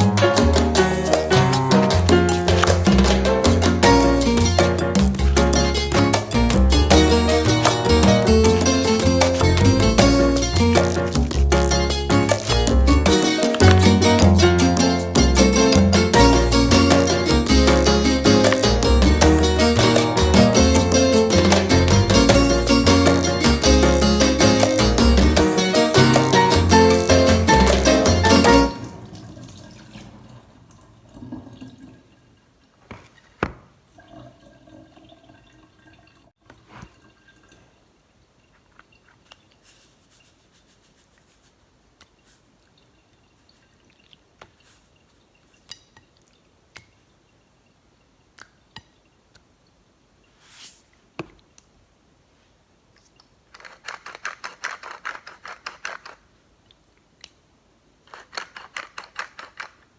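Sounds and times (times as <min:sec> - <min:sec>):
utensils clicking and knocking: 0:53.5 - 0:56.2, 0:58.1 - 0:59.8.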